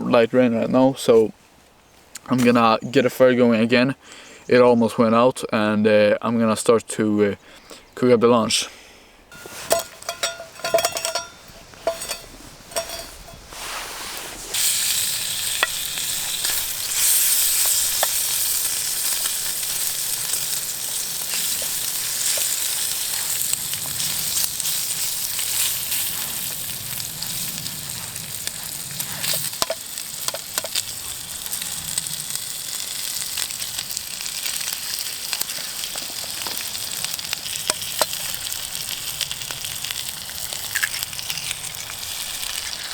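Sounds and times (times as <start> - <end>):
food sizzling in a pan: 9.3 - 42.9.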